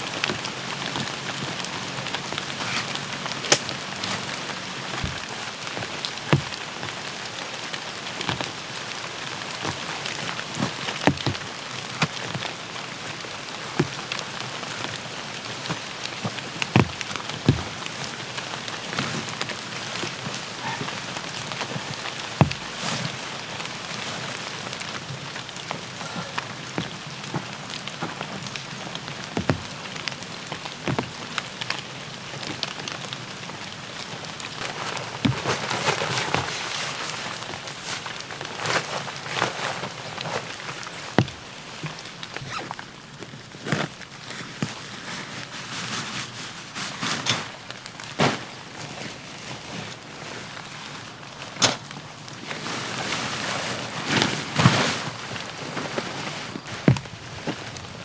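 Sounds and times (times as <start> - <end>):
steady rain falling: 0.0 - 58.0
drops striking a surface: 22.4 - 22.8.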